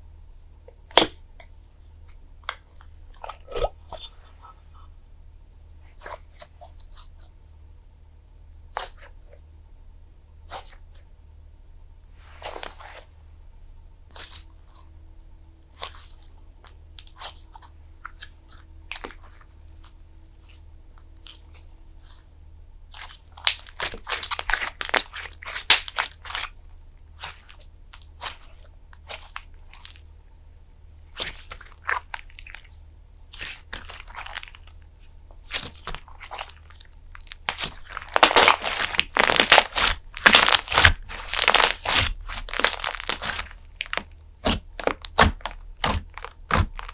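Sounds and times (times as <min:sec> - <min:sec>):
slime crackling: 0:22.9 - 0:26.6, 0:31.1 - 0:46.9.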